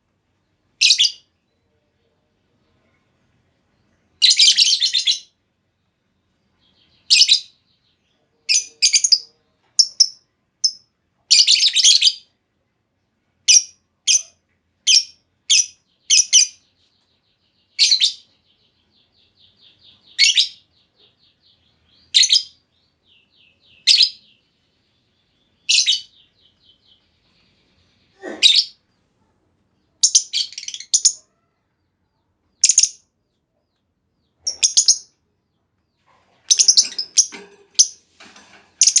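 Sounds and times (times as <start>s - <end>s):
lovebird chirping: 0.8s - 1.7s, 3.7s - 5.4s, 6.6s - 12.3s, 13.4s - 38.0s, 38.8s - 39.0s.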